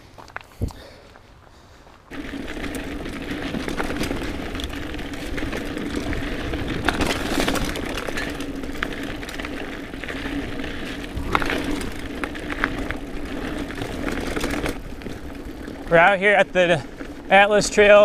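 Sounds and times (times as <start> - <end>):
tyre noise on dirt: 0.0 - 18.0
bike clicks and rattles: 0.2 - 18.0.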